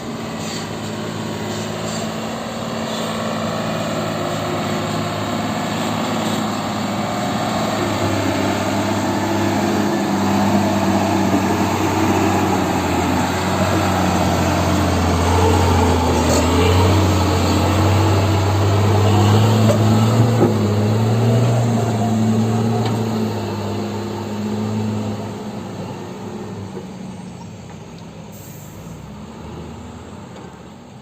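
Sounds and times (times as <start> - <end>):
diesel truck engine droning: 0.0 - 31.0.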